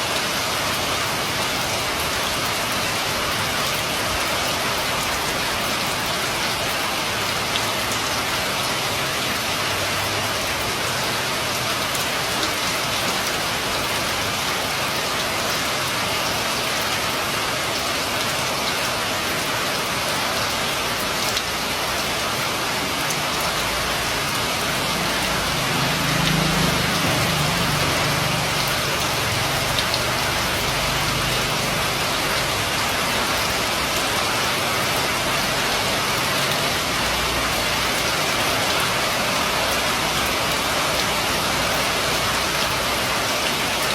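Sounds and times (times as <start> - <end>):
rain falling on roof: 0.0 - 43.9.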